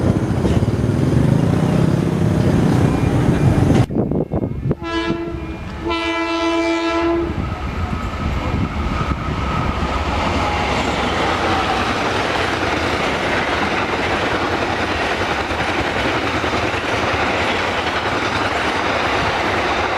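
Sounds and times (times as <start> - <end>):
train rumbling on rails: 0.0 - 19.9
train horn blast: 4.6 - 8.1.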